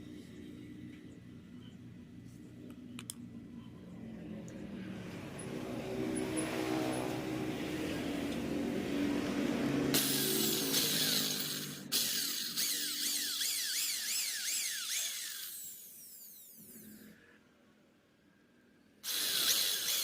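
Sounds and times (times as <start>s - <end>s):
low engine hum: 0.0s - 12.0s
power tool whining: 9.9s - 17.2s, 19.0s - 20.0s.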